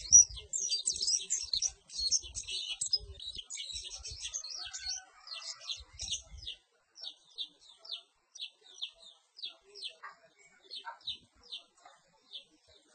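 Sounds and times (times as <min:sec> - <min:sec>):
bird high chirps: 0:00.0 - 0:10.0.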